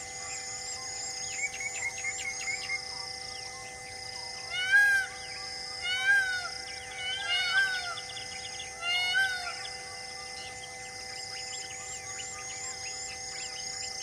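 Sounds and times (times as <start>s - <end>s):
steady high held tones: 0.0s - 14.0s
bird calling: 4.4s - 14.0s.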